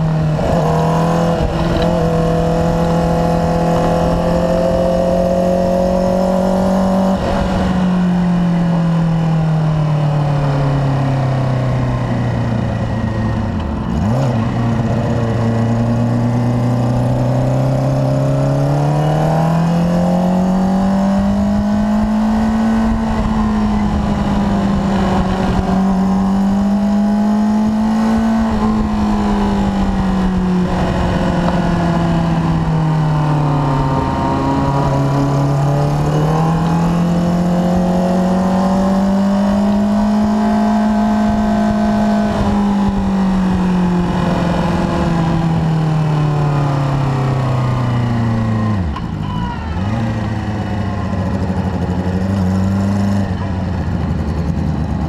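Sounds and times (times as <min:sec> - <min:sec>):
motorcycle engine revving: 0:00.0 - 0:55.0
wind rush: 0:21.1 - 0:48.0.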